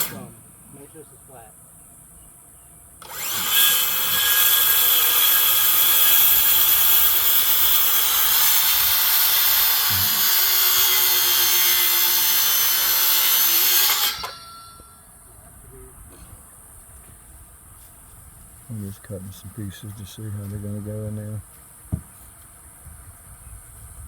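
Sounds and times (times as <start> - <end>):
power saw cutting wood: 0.0 - 0.3, 3.0 - 14.9.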